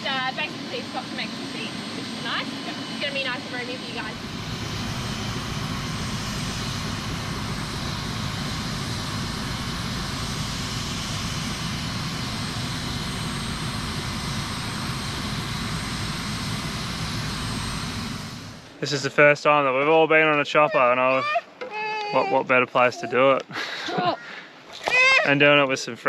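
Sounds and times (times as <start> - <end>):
helicopter rotor beat: 0.0 - 19.3
helicopter turbine whine: 0.0 - 21.6.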